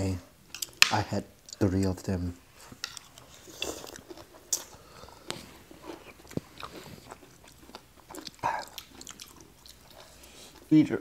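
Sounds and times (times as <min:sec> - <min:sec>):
people chewing: 0:02.6 - 0:10.8.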